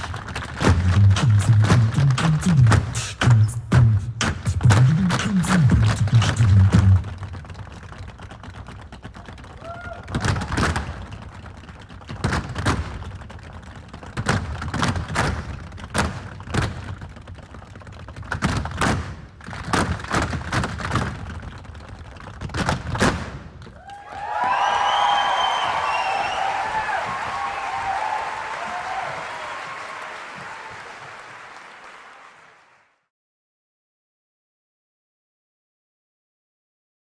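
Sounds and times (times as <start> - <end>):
dancers stamping on a stage: 0.0 - 31.2.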